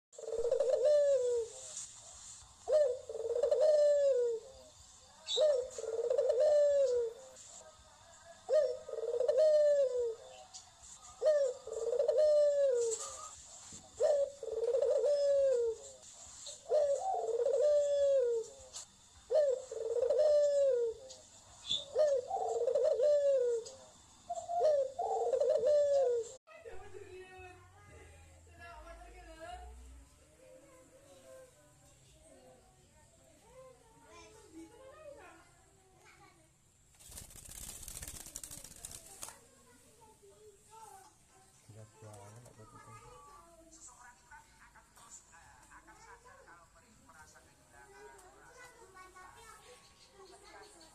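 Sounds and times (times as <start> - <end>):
bird calling: 8.5 - 26.4.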